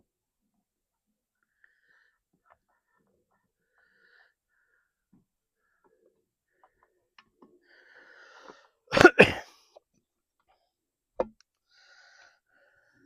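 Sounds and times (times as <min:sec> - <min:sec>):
man coughing: 0:08.9 - 0:09.6.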